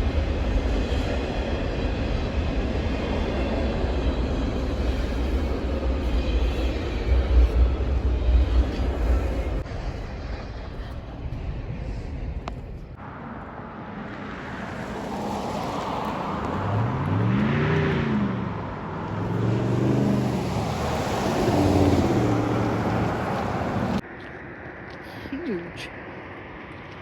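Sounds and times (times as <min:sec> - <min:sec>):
low rumble: 0:00.0 - 0:13.7
motor vehicle passing: 0:13.0 - 0:24.0.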